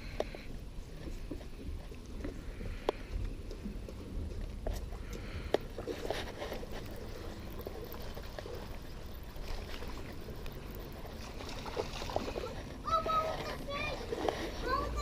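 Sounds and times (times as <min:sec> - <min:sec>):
creek water running: 0:00.0 - 0:15.0
faint ticks: 0:01.3 - 0:04.0.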